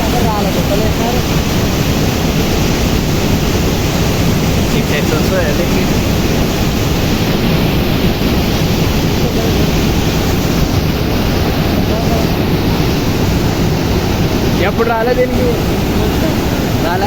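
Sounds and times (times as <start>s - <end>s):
floodwater rushing through spillway: 0.0s - 17.0s.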